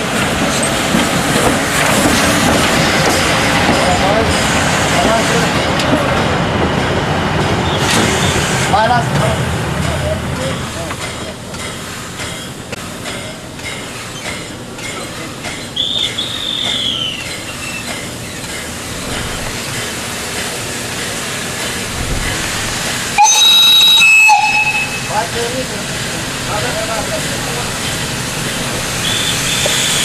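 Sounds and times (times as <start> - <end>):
train wheels clicking on rail joints: 0.1 - 23.2, 24.3 - 30.0
steam locomotive whistle: 15.8 - 17.2, 23.2 - 25.4, 29.0 - 30.0.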